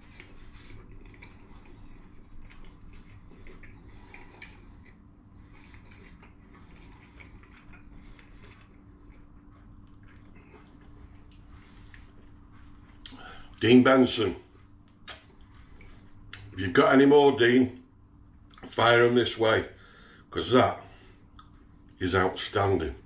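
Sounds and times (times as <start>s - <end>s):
man chewing: 0.0s - 13.6s, 14.5s - 16.6s, 20.9s - 22.0s
steady low hum: 0.0s - 23.0s.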